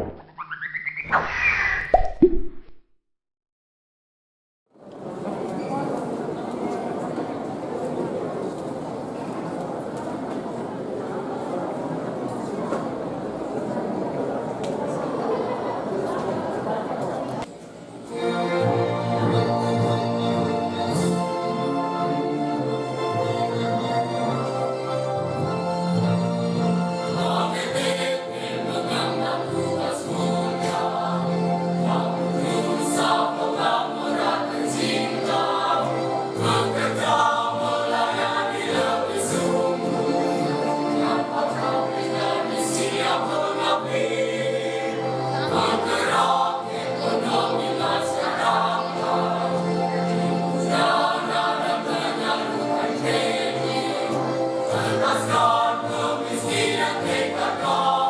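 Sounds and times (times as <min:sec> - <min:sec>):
choir singing in parts: 0:18.1 - 0:58.0.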